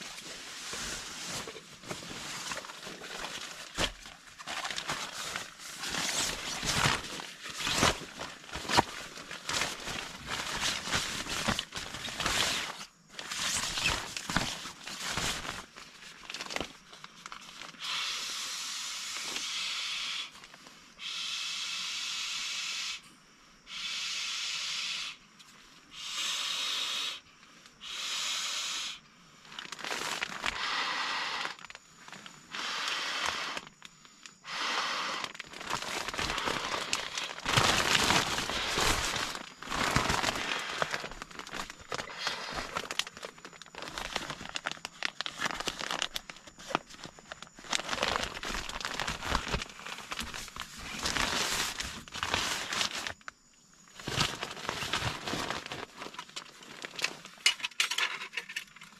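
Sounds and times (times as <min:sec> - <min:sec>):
crinkling and crackling material: 0:00.0 - 0:17.8, 0:29.4 - 0:30.6, 0:31.3 - 0:58.9.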